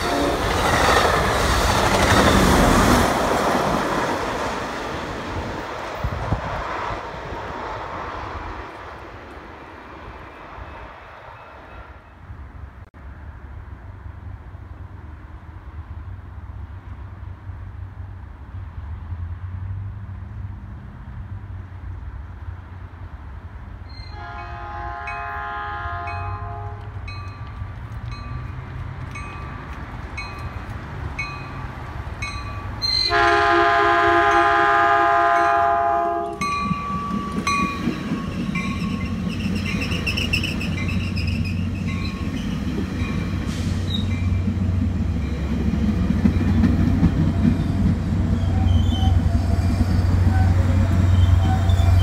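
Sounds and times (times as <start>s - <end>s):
train horn blasts: 0.0s - 0.6s, 24.0s - 27.0s, 32.9s - 36.6s
train wheels on rails: 0.0s - 12.3s, 25.0s - 52.0s.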